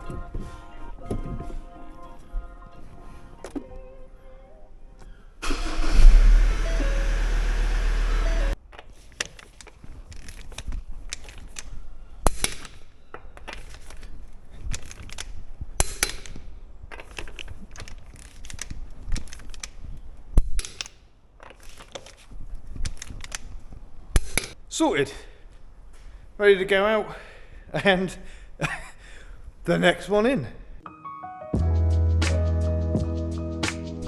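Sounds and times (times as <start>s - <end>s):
vehicle engine starting and running: 5.4s - 8.6s
workshop clicks and knocks: 8.5s - 24.6s.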